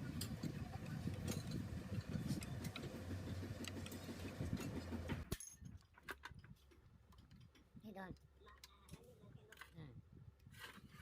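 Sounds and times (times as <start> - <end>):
motor humming with rattling clicks: 0.1 - 5.3.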